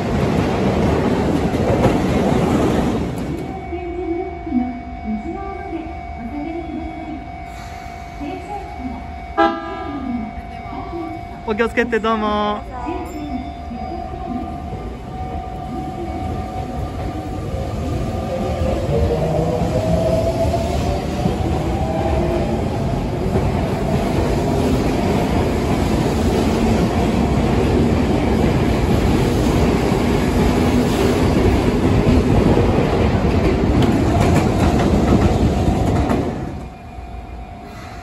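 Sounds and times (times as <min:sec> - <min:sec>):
train wheels rumbling and clattering: 0:00.0 - 0:03.7, 0:12.7 - 0:36.8.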